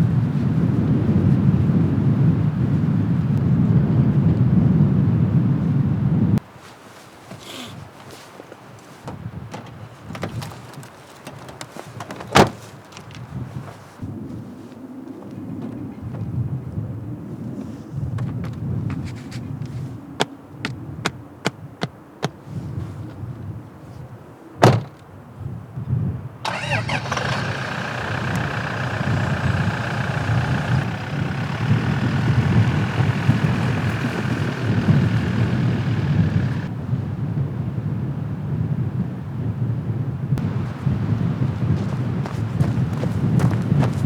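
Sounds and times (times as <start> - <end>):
car door shutting: 9.0 - 12.7, 24.6 - 25.0, 26.4 - 36.7
wind on microphone: 25.4 - 44.0
car engine running: 26.4 - 36.7, 40.4 - 44.0.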